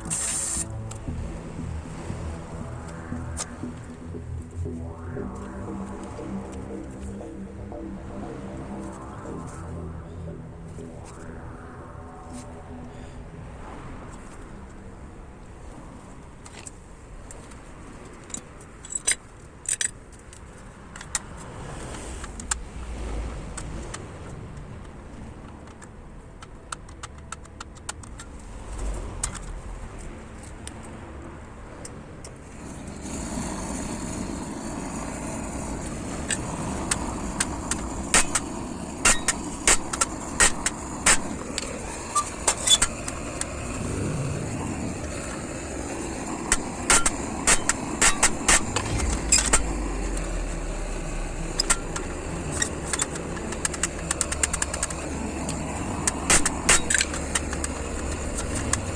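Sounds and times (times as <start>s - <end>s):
steady rushing noise: 0.0s - 58.9s
hammer striking metal grate: 38.1s - 41.3s, 46.9s - 49.7s.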